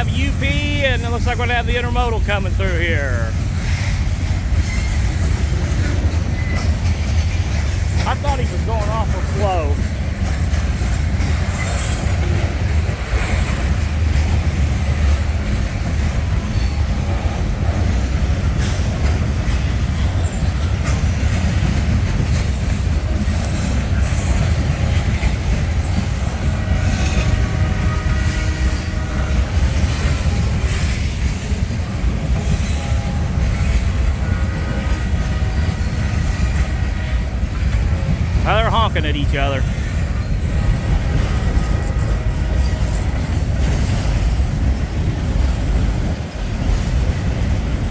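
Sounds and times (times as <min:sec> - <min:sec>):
wheels clicking over rail joints: 0:00.0 - 0:38.4, 0:39.6 - 0:47.9
train wheels rumbling on rail: 0:00.0 - 0:47.9
locomotive horn blasts: 0:26.1 - 0:30.2, 0:32.5 - 0:43.8.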